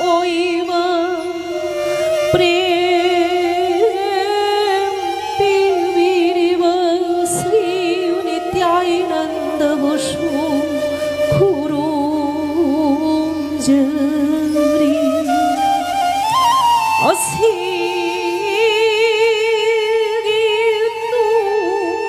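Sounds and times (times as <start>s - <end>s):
sustained drone: 0.0s - 15.8s
woman singing slow melody: 0.0s - 15.9s, 17.0s - 22.0s.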